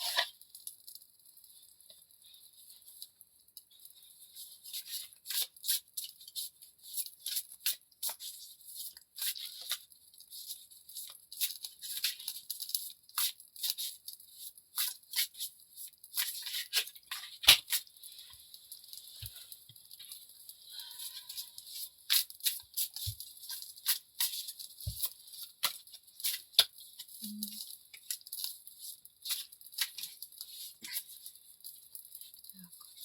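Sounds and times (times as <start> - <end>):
cards being shuffled: 21.7 - 27.2, 28.0 - 31.2.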